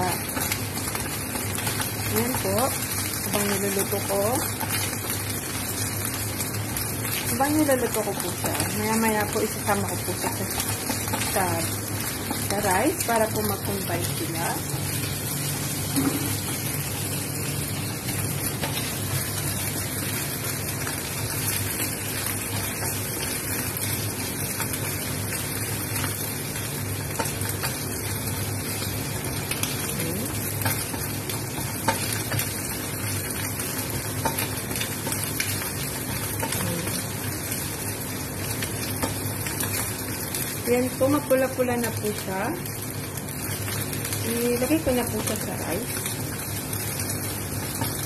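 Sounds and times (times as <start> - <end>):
chicken pieces sizzling in oil: 0.0 - 48.0.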